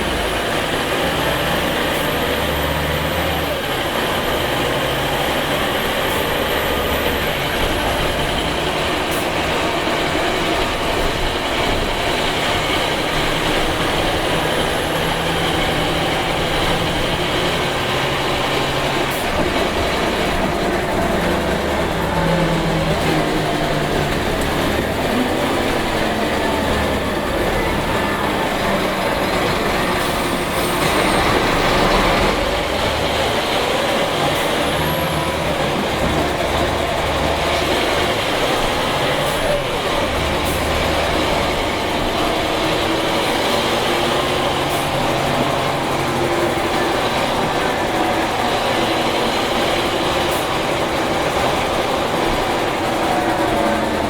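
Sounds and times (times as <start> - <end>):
bus diesel engine running: 0.0 - 54.0
road noise: 0.0 - 54.0.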